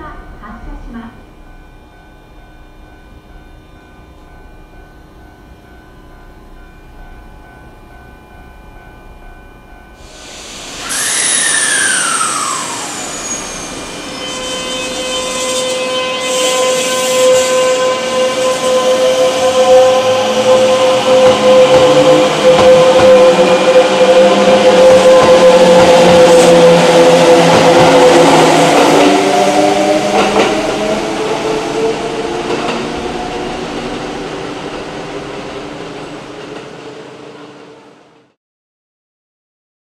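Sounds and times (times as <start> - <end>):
electric train whine: 0.0 - 38.2
track noise: 10.3 - 36.9.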